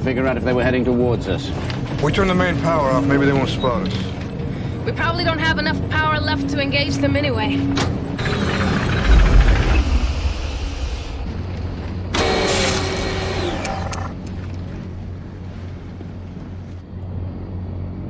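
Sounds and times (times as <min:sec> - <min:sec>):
heavy low rumble: 0:00.0 - 0:17.3
steady low hum: 0:00.0 - 0:18.0
mechanical whirring winding down: 0:08.0 - 0:14.5.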